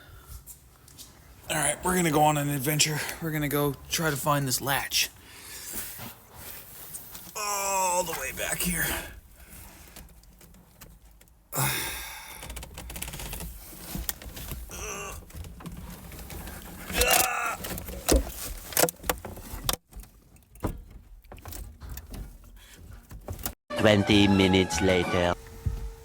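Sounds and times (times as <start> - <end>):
hands clicking and rustling: 12.3 - 23.6.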